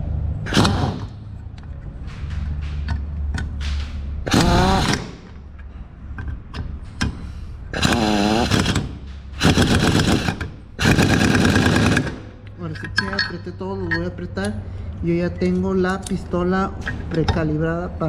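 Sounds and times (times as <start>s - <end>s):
impact gun whining and hammering: 0.4s - 1.3s, 2.0s - 5.5s, 6.2s - 12.4s.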